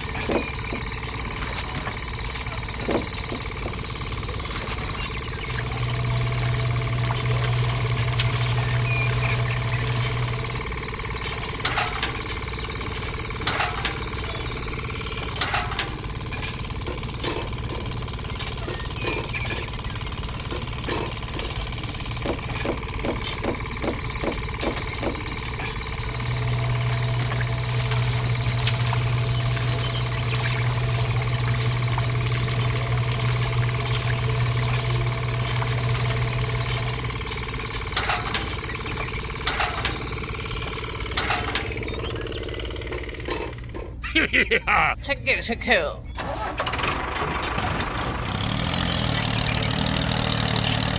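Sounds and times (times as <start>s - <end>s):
motor hum: 0.0s - 45.1s, 46.0s - 50.9s
knocks and taps: 22.2s - 25.4s.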